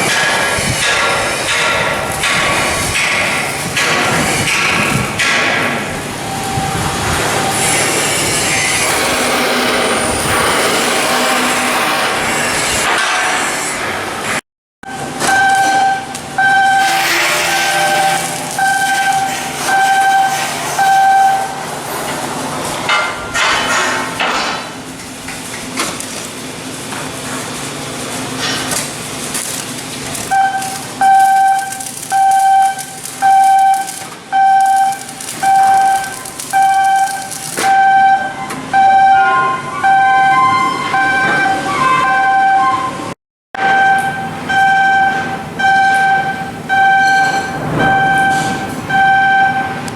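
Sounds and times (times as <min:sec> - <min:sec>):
clatter of shipyard work: 0:00.0 - 0:38.6
electronic warning beeper: 0:14.9 - 0:21.6, 0:29.4 - 0:42.8.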